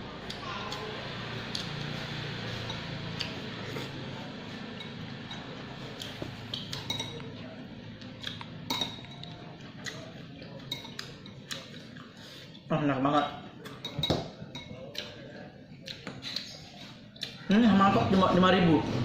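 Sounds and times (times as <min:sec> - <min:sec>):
spoon clinking against bowl: 0:04.8 - 0:05.5, 0:06.6 - 0:07.3, 0:08.7 - 0:09.4.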